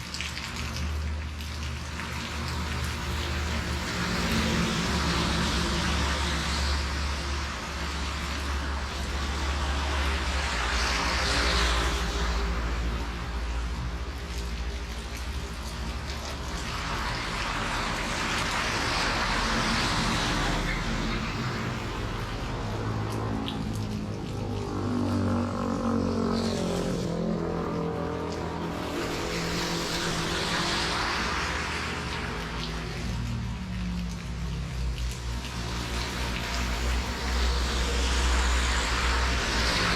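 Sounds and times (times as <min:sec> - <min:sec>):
heavy rain hissing: 0:00.0 - 0:23.7, 0:26.2 - 0:39.9.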